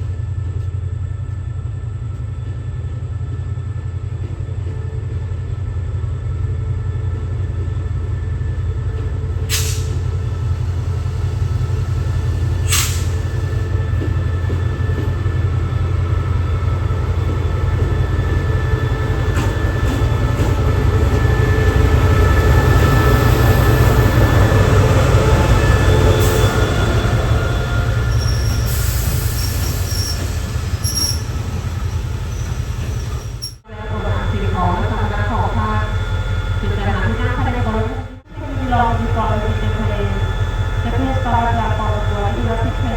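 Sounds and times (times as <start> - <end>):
train rumbling on track: 0.0 - 42.9.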